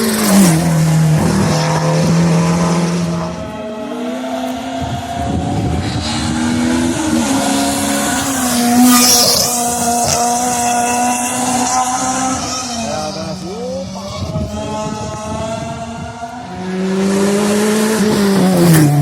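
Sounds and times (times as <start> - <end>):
race car engine shifting gears: 4.4 - 13.4.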